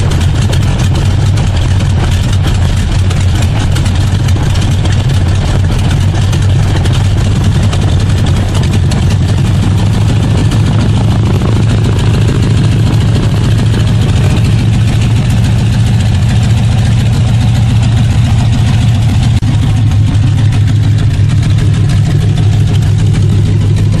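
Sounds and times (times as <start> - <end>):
radial engine running loudly: 0.0 - 24.0.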